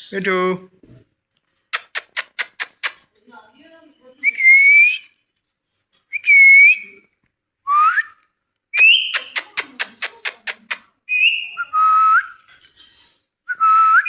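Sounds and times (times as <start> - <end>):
parakeet whistling: 8.8 - 9.4, 11.1 - 12.4.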